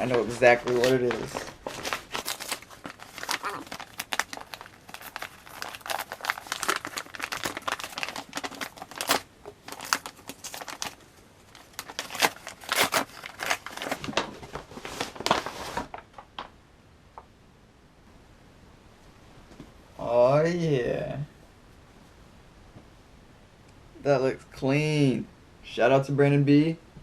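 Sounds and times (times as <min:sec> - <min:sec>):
package wrapping crinkling: 0:00.0 - 0:16.5.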